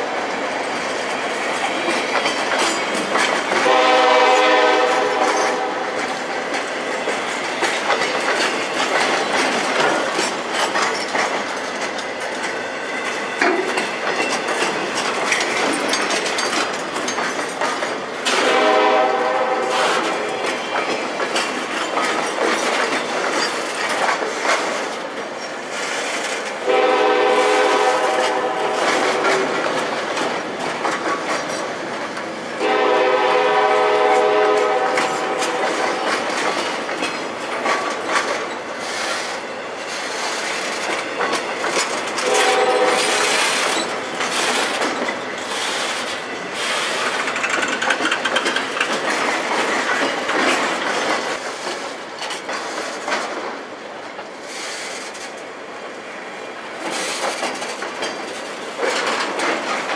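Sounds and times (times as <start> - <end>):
freight train wheels clacking: 0.0 - 59.9
locomotive air horn blasts: 3.6 - 5.9, 18.3 - 20.1, 26.6 - 29.2, 32.6 - 35.6, 42.2 - 43.4.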